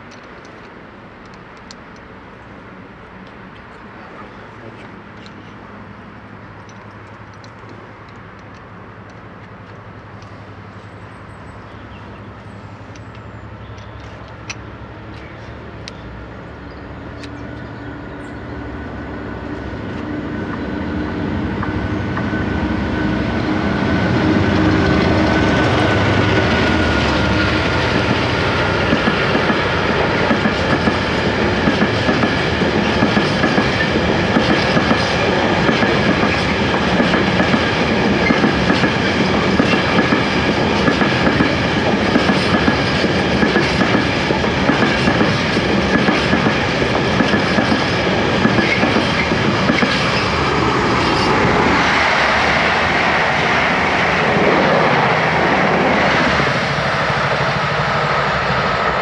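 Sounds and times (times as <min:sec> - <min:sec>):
high-speed train rushing past: 0:00.0 - 0:59.0
train wheels rumbling on rails: 0:11.8 - 0:59.0
clickety-clack over rail joints: 0:24.4 - 0:55.2.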